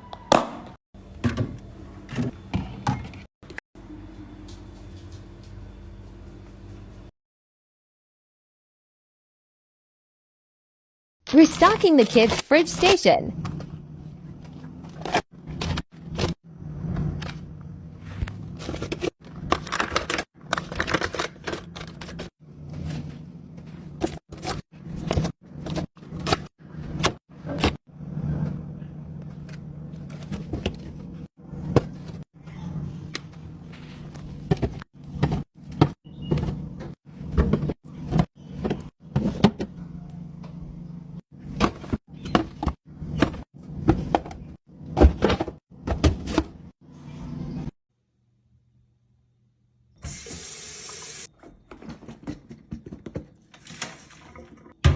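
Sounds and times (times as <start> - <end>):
items knocking and clattering: 34.2 - 39.7, 41.5 - 46.6.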